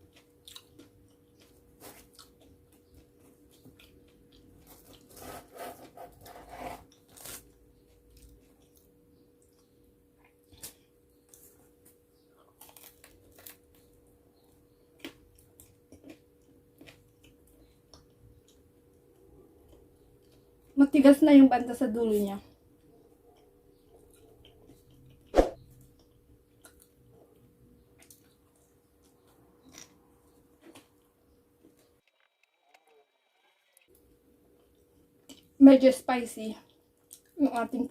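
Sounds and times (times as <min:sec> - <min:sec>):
person chewing crunchy food: 0:00.0 - 0:11.6, 0:12.4 - 0:20.8, 0:22.8 - 0:31.8.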